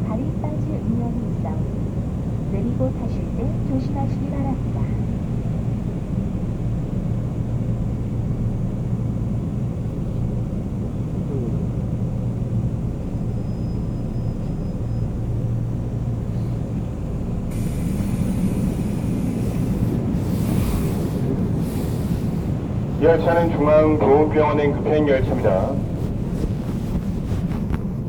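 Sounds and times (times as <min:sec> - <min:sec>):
subway train rumble: 0:00.0 - 0:28.0
hiss of doors opening: 0:17.5 - 0:22.6.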